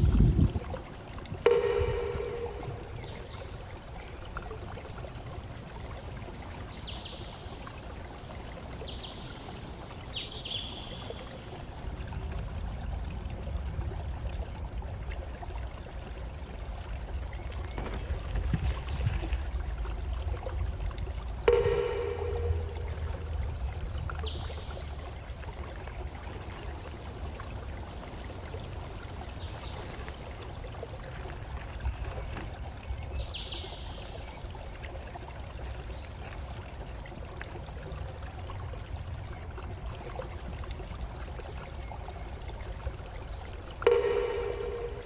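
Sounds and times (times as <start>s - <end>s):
running water: 0.0s - 45.0s.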